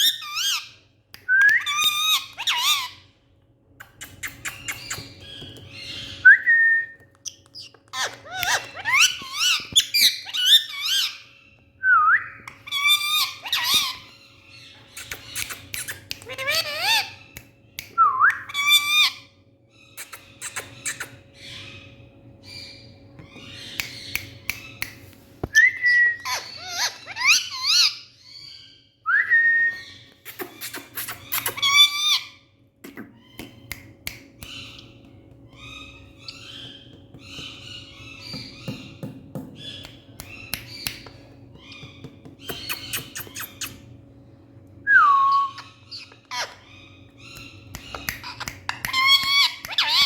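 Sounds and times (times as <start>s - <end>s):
parrot chattering and clicking: 3.7s - 5.8s, 7.1s - 11.1s, 14.8s - 19.2s, 20.0s - 21.4s, 30.2s - 32.2s, 39.3s - 43.9s, 46.0s - 50.0s.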